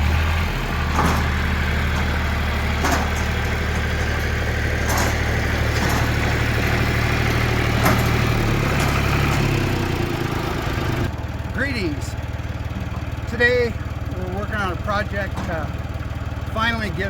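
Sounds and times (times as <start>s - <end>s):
heavy machine engine running: 0.0s - 17.0s
metal knocks and clanks: 0.7s - 11.1s, 13.8s - 17.0s.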